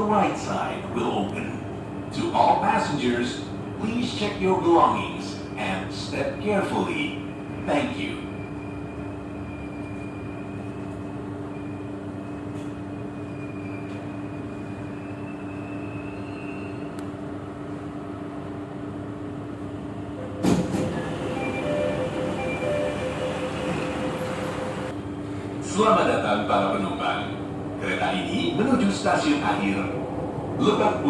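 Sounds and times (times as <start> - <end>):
train running hum: 0.0 - 31.0
short beeps: 21.1 - 23.8.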